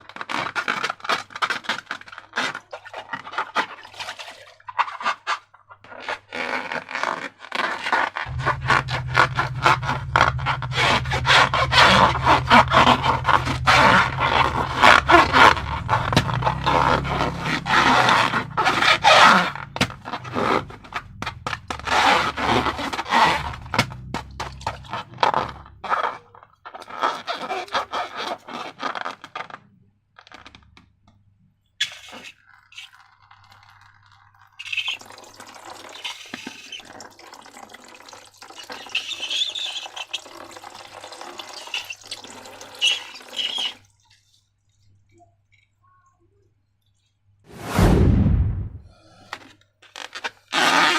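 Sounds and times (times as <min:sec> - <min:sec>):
slime stirred and scraped: 0:00.0 - 0:29.7
liquid pouring or sloshing: 0:02.7 - 0:05.2, 0:08.3 - 0:25.6, 0:32.4 - 0:45.1.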